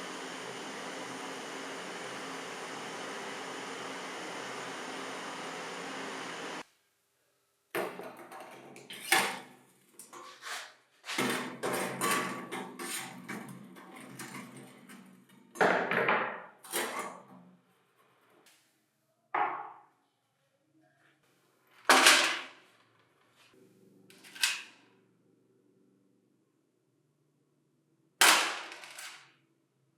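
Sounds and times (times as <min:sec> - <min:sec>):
metal parts clattering: 0:21.9 - 0:22.4, 0:28.3 - 0:29.2.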